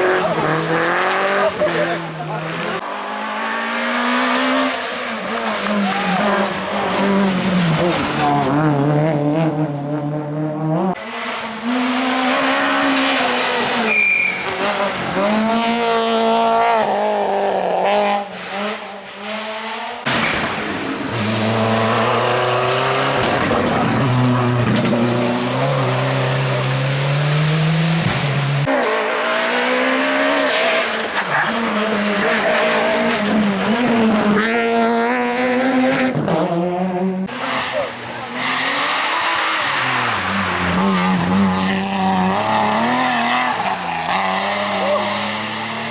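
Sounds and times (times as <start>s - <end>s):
rally car engines revving: 0.0s - 45.9s
tyres squealing: 13.7s - 14.9s.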